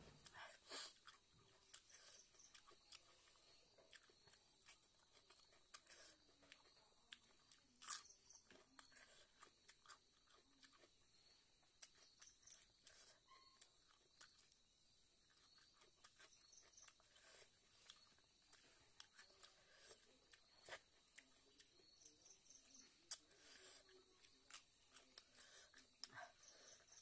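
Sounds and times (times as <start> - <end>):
person chewing crunchy food: 0.1 - 27.0.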